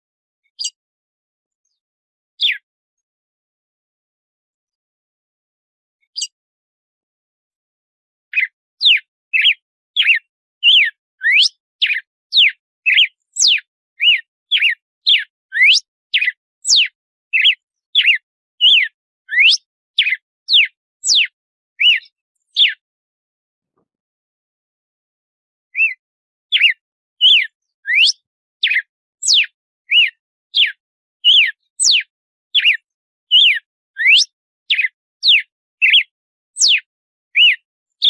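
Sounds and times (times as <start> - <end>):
bird whistling short clear notes: 6.1 - 6.3, 8.3 - 22.8, 25.8 - 32.0, 32.6 - 36.0, 37.4 - 37.6.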